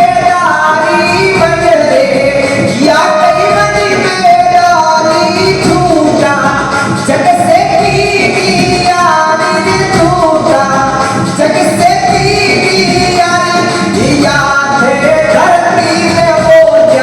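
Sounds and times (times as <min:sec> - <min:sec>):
devotional song melody: 0:00.0 - 0:17.0.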